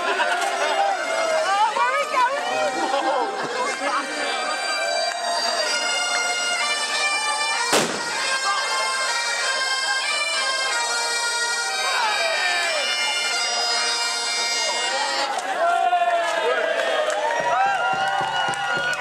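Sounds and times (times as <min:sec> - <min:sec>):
bagpipes playing: 0:00.0 - 0:15.5
sharp bang: 0:07.7 - 0:08.2.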